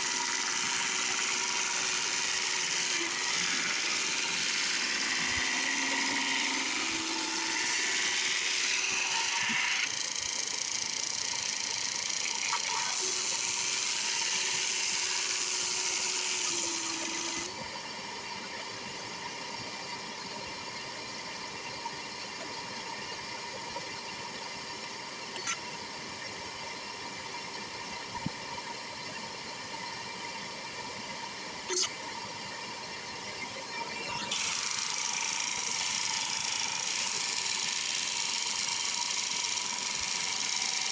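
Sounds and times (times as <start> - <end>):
drum sander hissing: 0.0 - 17.5, 34.3 - 40.9
motors humming: 0.0 - 17.8, 31.7 - 40.9.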